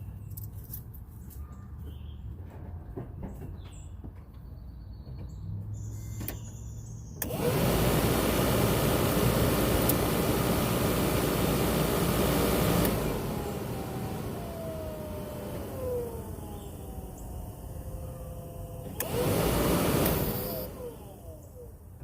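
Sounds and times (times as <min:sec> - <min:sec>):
blower fan motor running: 0:07.2 - 0:22.0
fan spinning down whine: 0:07.2 - 0:22.0.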